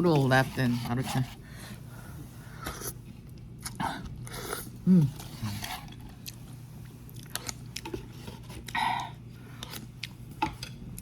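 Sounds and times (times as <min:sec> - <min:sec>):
person chewing noodles: 0:02.6 - 0:10.3.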